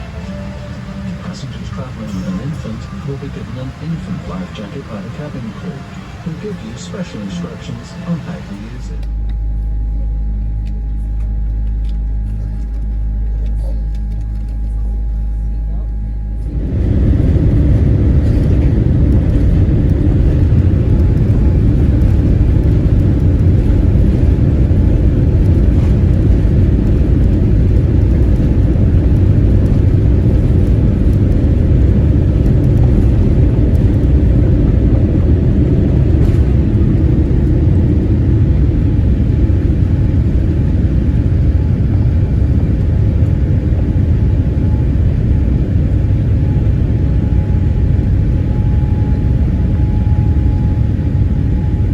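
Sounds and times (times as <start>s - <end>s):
jet engine cabin rumble: 0.0s - 51.9s.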